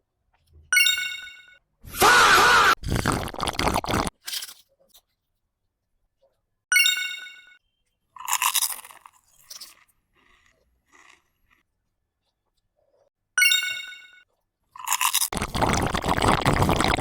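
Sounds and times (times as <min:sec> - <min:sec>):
crunchy chewing of food: 0:08.2 - 0:13.1, 0:14.3 - 0:17.0.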